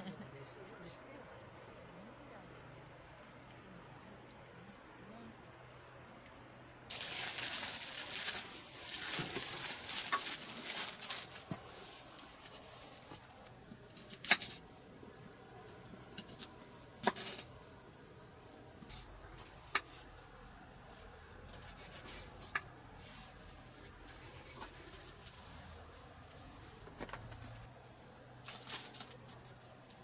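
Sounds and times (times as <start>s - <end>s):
rustling and crinkling: 6.9s - 14.6s, 21.0s - 27.7s, 28.4s - 30.0s.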